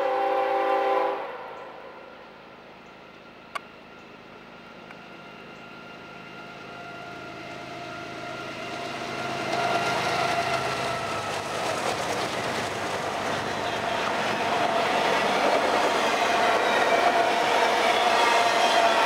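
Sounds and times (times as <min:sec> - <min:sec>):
freight train passing: 0:00.0 - 0:19.0
locomotive whine: 0:00.0 - 0:19.0.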